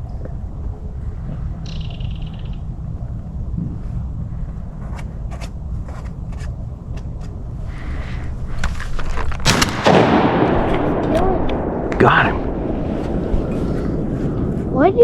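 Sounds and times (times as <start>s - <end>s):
boat motor rumbling: 0.0s - 9.5s
loud burst of noise: 8.4s - 15.0s.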